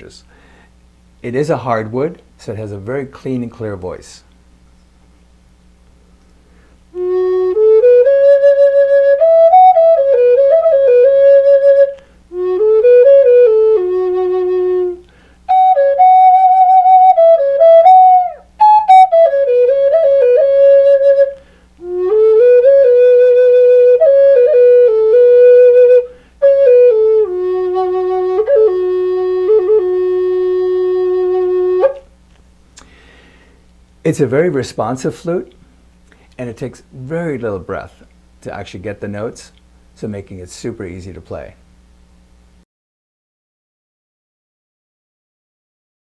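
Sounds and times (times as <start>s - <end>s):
wooden flute playing slow melody: 6.9s - 32.1s.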